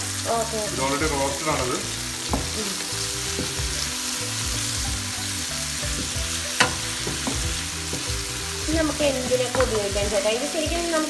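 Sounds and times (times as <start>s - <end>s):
food sizzling in hot oil: 0.0s - 11.0s
spatula knocking on pan: 2.2s - 2.6s, 5.8s - 10.1s
spatula stirring food: 2.2s - 10.2s.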